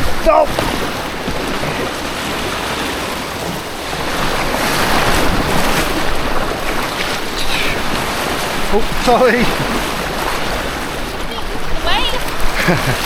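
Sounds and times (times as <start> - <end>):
white water rushing: 0.0 - 13.0.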